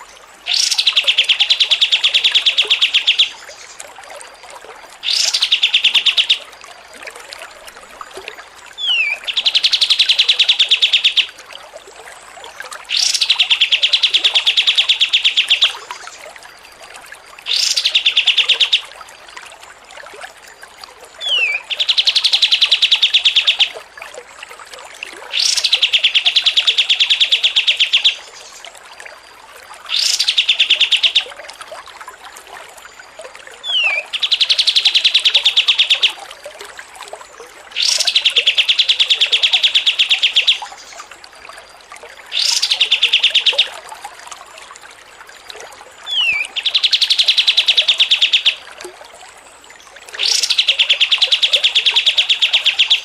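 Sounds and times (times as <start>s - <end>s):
songbird trilling: 0.5s - 3.7s, 5.0s - 6.4s, 8.8s - 11.3s, 12.9s - 15.9s, 17.5s - 18.8s, 21.2s - 23.7s, 25.3s - 28.5s, 29.9s - 31.3s, 33.6s - 36.1s, 37.8s - 41.0s, 42.3s - 43.7s, 46.1s - 48.7s, 50.2s - 53.0s.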